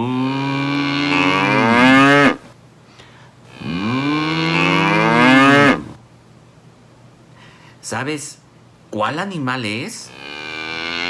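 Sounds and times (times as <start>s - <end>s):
cow mooing: 0.0s - 2.5s, 3.5s - 6.0s, 10.1s - 11.0s.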